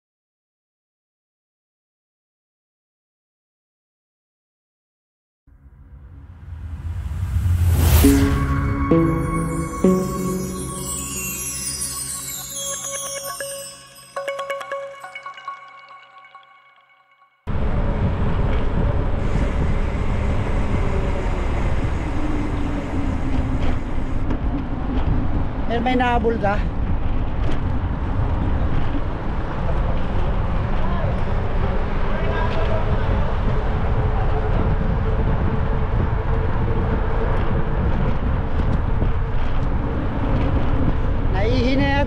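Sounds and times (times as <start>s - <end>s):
road and traffic noise: 17.5s - 41.8s
wind rumble on microphone: 17.5s - 42.0s.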